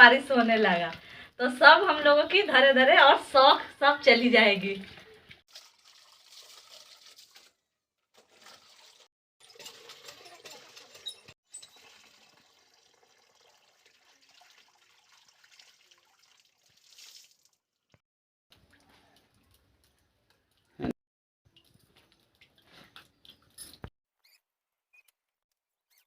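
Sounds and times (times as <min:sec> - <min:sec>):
water splashing with wet clothes: 0:04.6 - 0:11.1, 0:13.9 - 0:20.9.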